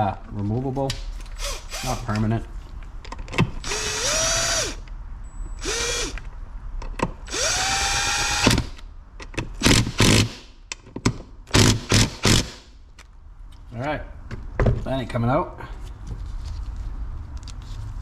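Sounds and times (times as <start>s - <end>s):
cordless drill motor whine: 3.6s - 4.8s, 5.6s - 6.2s, 7.3s - 8.6s.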